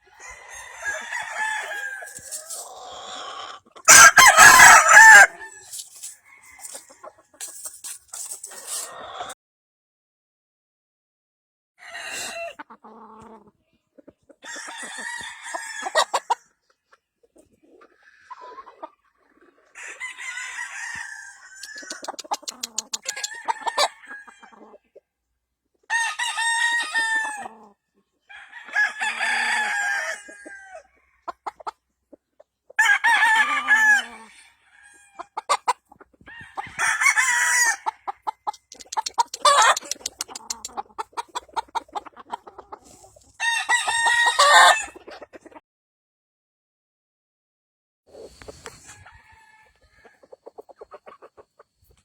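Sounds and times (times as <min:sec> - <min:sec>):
roosters crowing: 0:00.0 - 0:07.1, 0:14.4 - 0:16.4, 0:19.7 - 0:24.7, 0:25.9 - 0:27.6, 0:28.3 - 0:31.4, 0:32.8 - 0:35.6, 0:36.2 - 0:40.7, 0:43.4 - 0:45.0, 0:48.7 - 0:50.3
clucking: 0:02.0 - 0:09.4, 0:15.9 - 0:20.1, 0:21.5 - 0:25.1, 0:31.2 - 0:32.8, 0:35.2 - 0:43.4, 0:44.3 - 0:45.6, 0:50.0 - 0:52.0
short sharp ticks: 0:21.6 - 0:23.4, 0:38.5 - 0:40.8.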